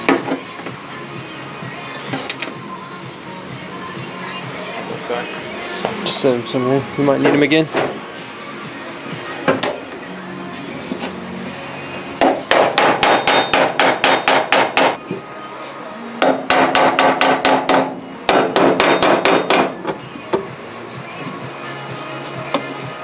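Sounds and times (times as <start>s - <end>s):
hammer tapping on metal: 12.2s - 15.0s, 16.2s - 19.7s.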